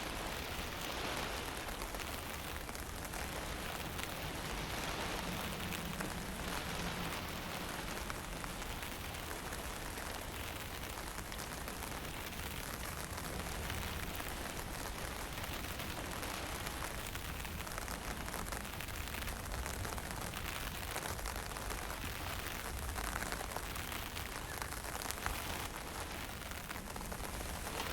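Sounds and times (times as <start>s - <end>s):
wind blowing: 0.0s - 27.9s.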